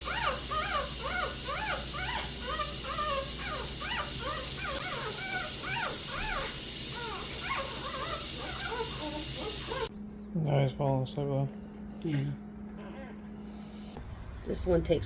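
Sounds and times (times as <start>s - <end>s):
puppies whimpering: 0.0s - 9.9s, 12.8s - 13.4s.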